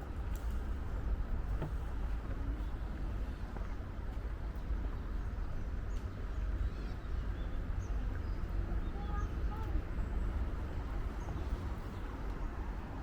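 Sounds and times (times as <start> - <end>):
light ticks: 0.2 - 0.7, 5.9 - 6.2.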